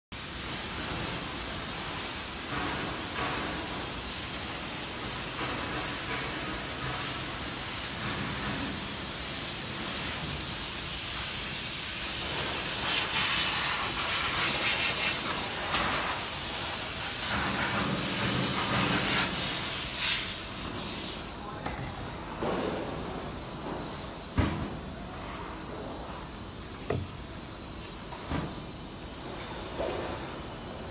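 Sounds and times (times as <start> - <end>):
steady hissing noise: 0.2 - 30.9.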